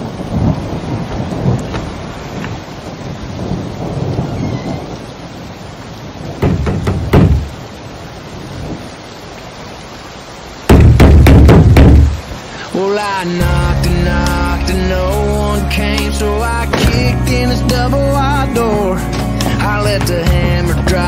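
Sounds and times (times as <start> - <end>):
sharp thunderclaps: 0.0 - 2.6, 10.7 - 12.2
rolling thunder: 0.0 - 7.6
steady rain: 0.0 - 21.0.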